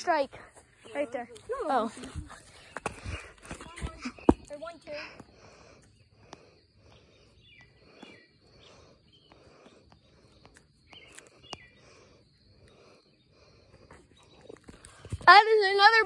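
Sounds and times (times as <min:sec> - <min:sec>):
faint outdoor background noise: 0:00.0 - 0:16.0
soft chirps: 0:05.7 - 0:15.3.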